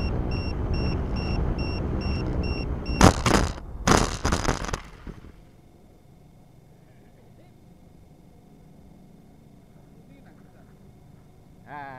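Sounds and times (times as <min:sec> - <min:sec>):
short high beeps: 0:00.0 - 0:03.2
plane impact on ground: 0:02.2 - 0:05.5.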